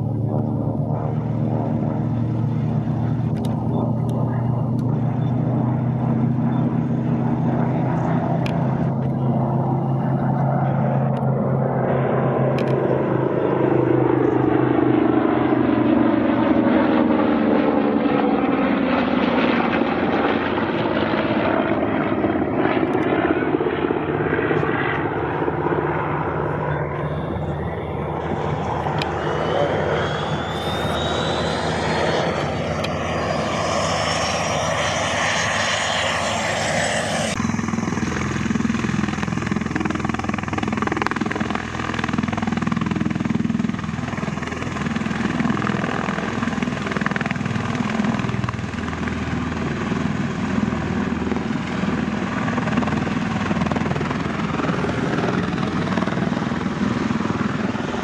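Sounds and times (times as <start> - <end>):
aircraft engine drone: 0.0 - 58.0
high whine rising in pitch: 26.6 - 38.2.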